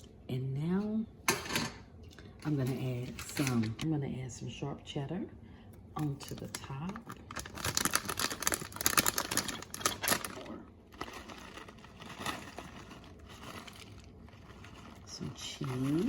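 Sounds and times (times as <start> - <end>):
plastic packaging crinkling: 6.0 - 16.0.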